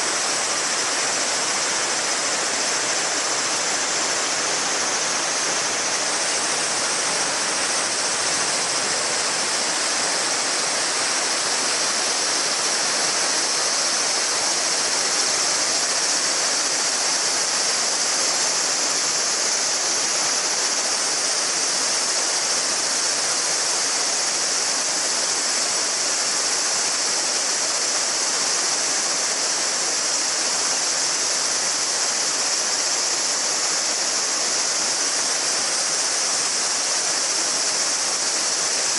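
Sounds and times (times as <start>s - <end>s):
cicadas droning: 0.0s - 38.9s
river babbling over stones: 0.0s - 38.9s.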